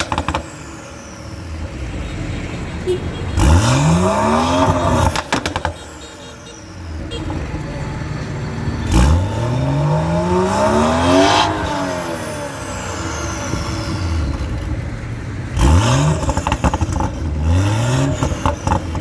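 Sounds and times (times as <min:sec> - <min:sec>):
car engine revving: 0:00.0 - 0:05.8, 0:07.3 - 0:19.0
exhaust crackling: 0:03.0 - 0:06.0, 0:06.9 - 0:19.0.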